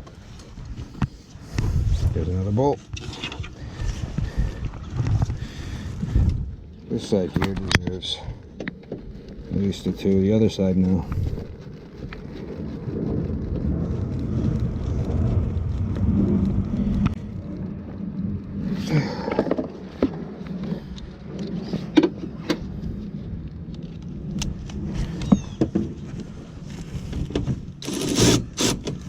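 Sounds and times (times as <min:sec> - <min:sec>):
low rumble: 0:00.0 - 0:28.2.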